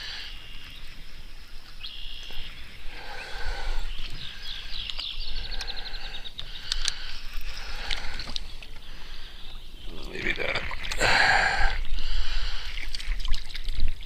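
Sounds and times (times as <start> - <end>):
birds singing: 0.0 - 13.0.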